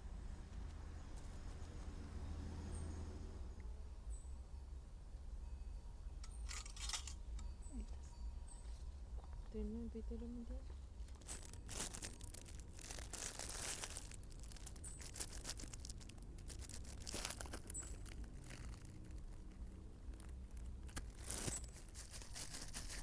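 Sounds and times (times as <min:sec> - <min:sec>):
crinkling and rustling handling: 0:10.3 - 0:23.0
sharp crackles: 0:11.0 - 0:23.0.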